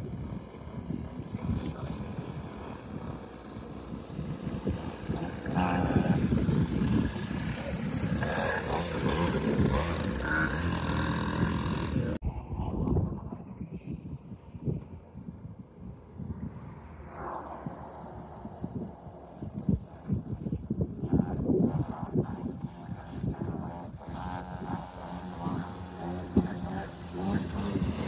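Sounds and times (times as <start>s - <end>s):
dirt bike engine running: 0.0s - 12.2s, 21.1s - 28.0s
wind on microphone: 0.0s - 28.0s.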